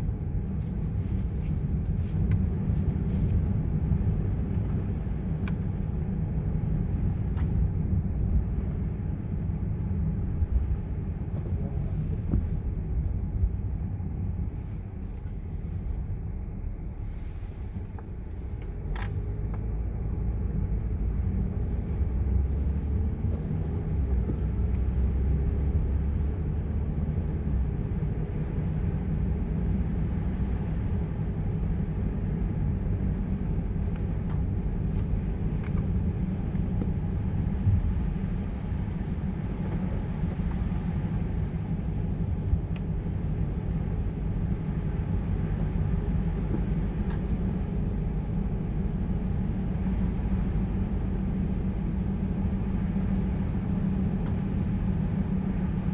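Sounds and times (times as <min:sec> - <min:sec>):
car engine and tyre rumble: 0:00.0 - 0:55.9.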